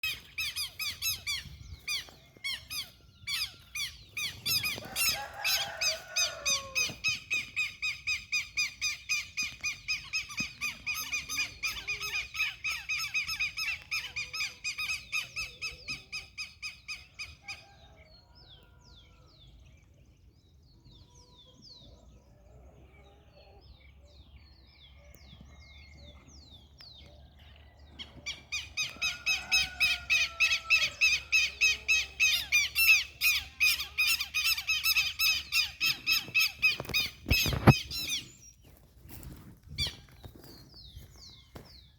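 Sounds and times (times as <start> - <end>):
bird calling rapidly: 0.0 - 17.1, 28.3 - 38.4.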